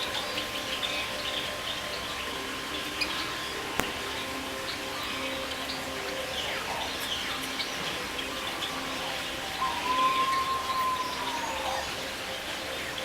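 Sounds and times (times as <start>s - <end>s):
birds chirping: 0.0s - 13.0s
long whistled bird note: 9.6s - 12.0s.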